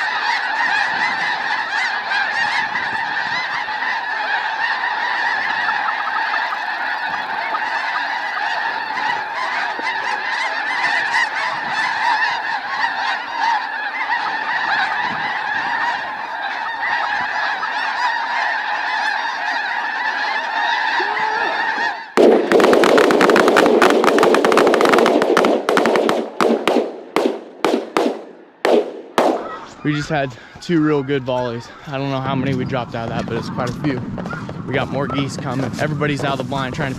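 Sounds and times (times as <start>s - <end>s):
flock of geese calling: 0.0s - 26.1s, 29.2s - 36.9s
shotguns firing: 22.2s - 29.7s.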